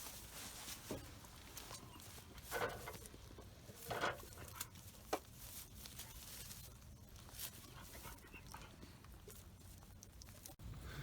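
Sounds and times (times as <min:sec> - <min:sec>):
rustling: 0:00.0 - 0:10.6
dog panting and snuffling: 0:07.2 - 0:09.5.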